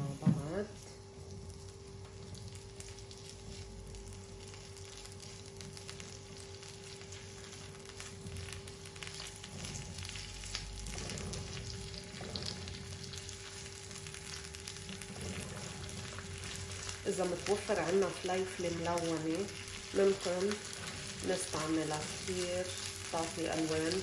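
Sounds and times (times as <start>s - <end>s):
vegetables sizzling in a frying pan: 0.0s - 24.0s.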